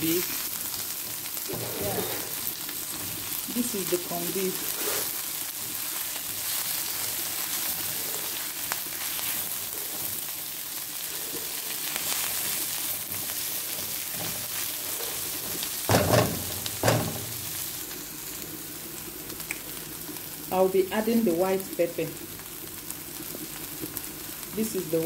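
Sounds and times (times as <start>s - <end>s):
food sizzling in oil: 0.0s - 25.0s
spatula stirring in wok: 4.5s - 17.8s
loud knocks: 15.8s - 17.4s.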